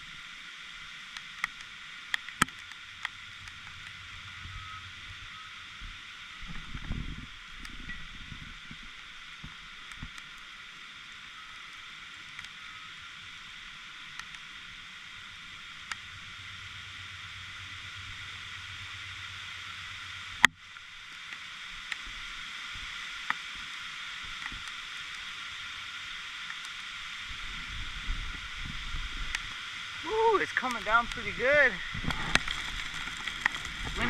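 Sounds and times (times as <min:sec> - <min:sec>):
heavy rain falling: 0:28.4 - 0:34.0
drops ticking: 0:30.1 - 0:34.0.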